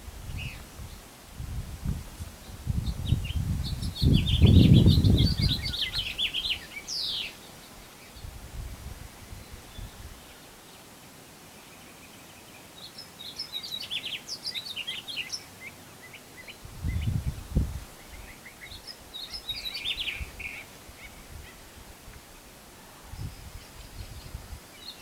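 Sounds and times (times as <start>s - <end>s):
faint outdoor hiss: 0.0s - 25.0s
songbird singing high notes: 2.8s - 8.3s.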